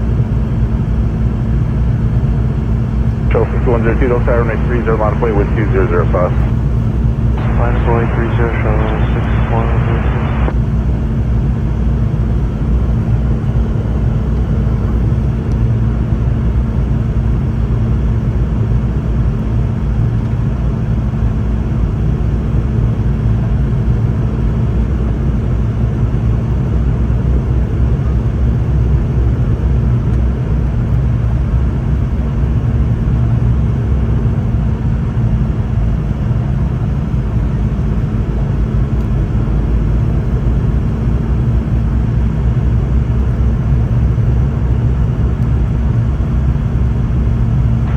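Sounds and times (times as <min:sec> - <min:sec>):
airliner cabin engine rumble: 0:00.1 - 0:10.5.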